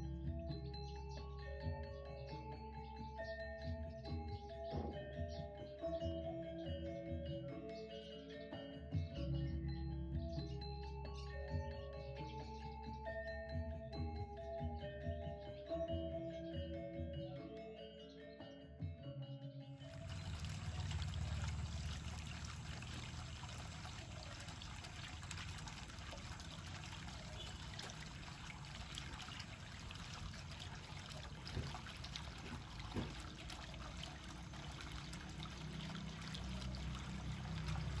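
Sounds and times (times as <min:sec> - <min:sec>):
trickling water: 0:19.8 - 0:38.0
faint knocks: 0:31.4 - 0:33.4.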